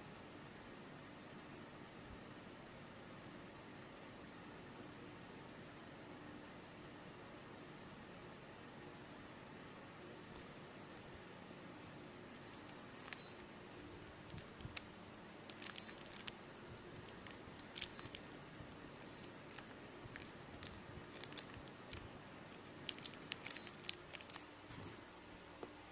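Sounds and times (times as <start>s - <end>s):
handling sounds: 11.8s - 13.5s, 15.5s - 25.1s.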